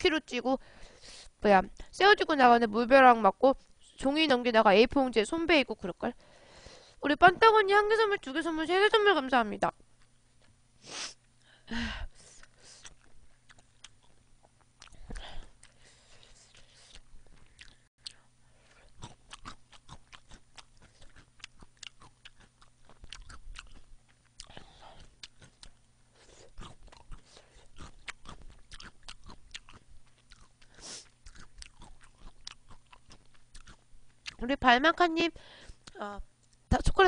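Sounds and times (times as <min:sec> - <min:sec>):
person chewing: 0:12.2 - 0:34.4.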